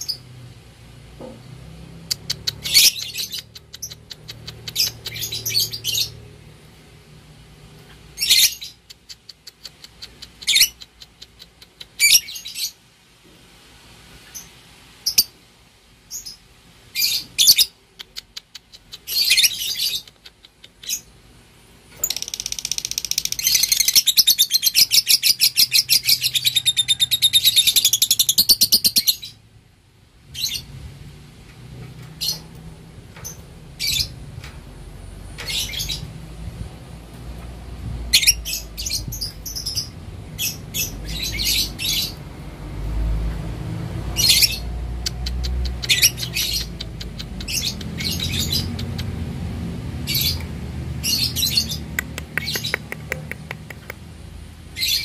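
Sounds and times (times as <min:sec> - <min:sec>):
lovebird chirping: 0:02.0 - 0:06.3, 0:07.9 - 0:12.8, 0:14.2 - 0:15.3, 0:16.1 - 0:21.1, 0:22.0 - 0:29.4, 0:32.0 - 0:34.5, 0:35.3 - 0:36.2, 0:38.1 - 0:42.3, 0:44.1 - 0:49.1, 0:54.8 - 0:55.0
lovebird chattering trill: 0:02.1 - 0:06.2, 0:44.2 - 0:49.0.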